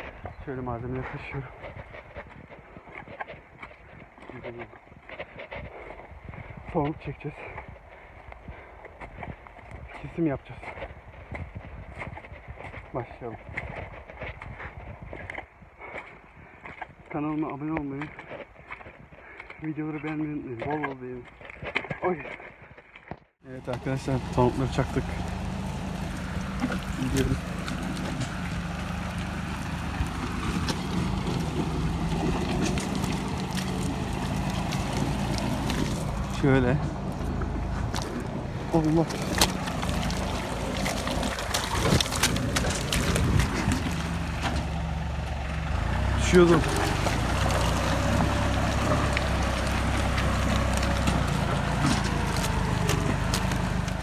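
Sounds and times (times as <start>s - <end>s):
tractor engine running: 23.5s - 54.0s.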